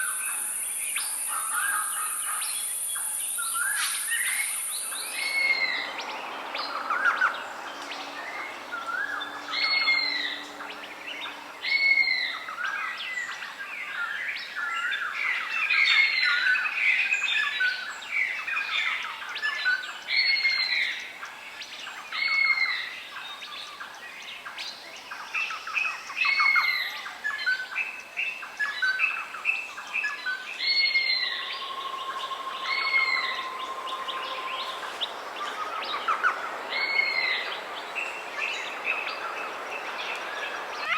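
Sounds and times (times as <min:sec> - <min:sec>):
long steady bird note: 0:00.0 - 0:12.6, 0:30.4 - 0:40.9
chorus of bird chirps: 0:00.0 - 0:16.4, 0:23.9 - 0:40.9.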